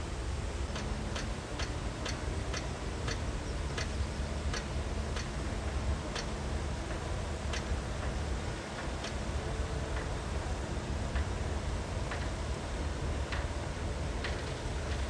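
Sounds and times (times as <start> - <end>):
sharp ticks or clanks: 0.7 - 5.4, 6.1 - 8.2.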